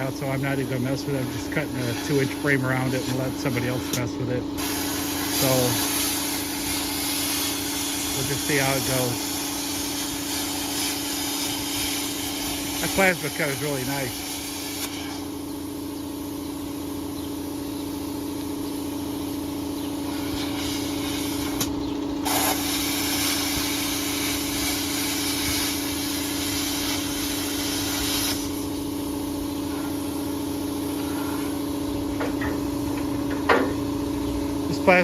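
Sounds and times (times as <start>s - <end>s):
plasma cutter hissing: 0.0s - 15.3s, 20.1s - 28.7s
steady hum: 0.0s - 35.0s.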